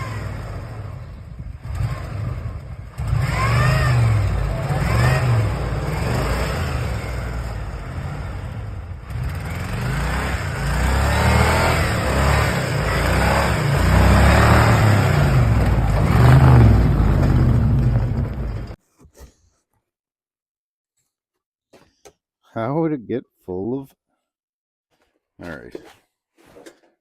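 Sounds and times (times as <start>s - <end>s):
car engine revving: 0.0s - 18.8s.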